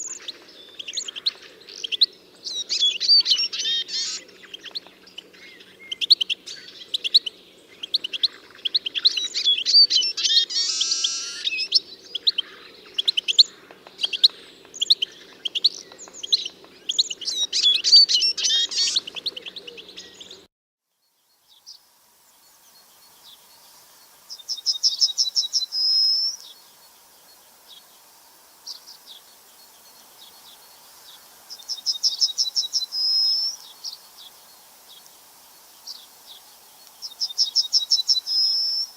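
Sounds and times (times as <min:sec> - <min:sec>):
birds chirping and singing: 0:00.0 - 0:20.5, 0:22.7 - 0:38.9
bird trilling: 0:02.6 - 0:04.3, 0:08.9 - 0:11.7.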